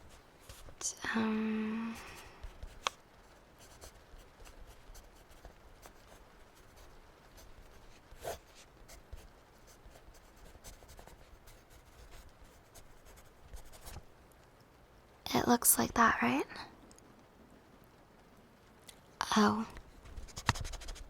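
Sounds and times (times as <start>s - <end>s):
pen scratching on paper: 3.6s - 14.0s, 20.3s - 21.0s.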